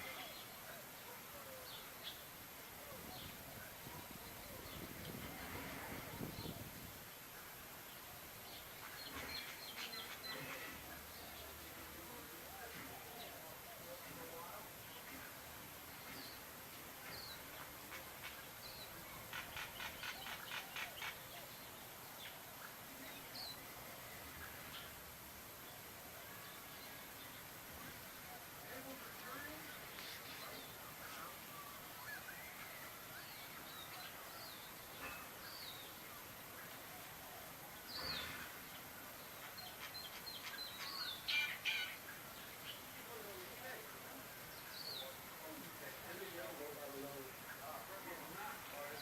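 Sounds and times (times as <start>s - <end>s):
outdoor ambience hiss: 0.0s - 49.0s
small birds chirping: 0.0s - 49.0s.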